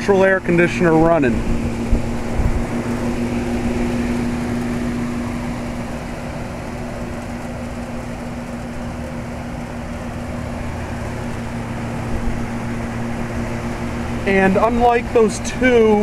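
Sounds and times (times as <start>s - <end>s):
air conditioner unit humming: 0.0s - 16.0s.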